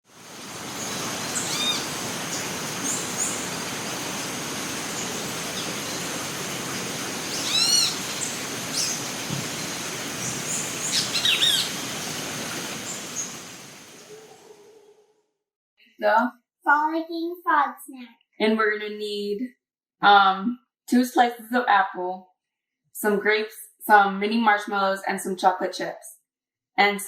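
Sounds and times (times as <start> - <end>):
steady hiss: 0.1 - 14.1
birds calling: 0.4 - 15.0.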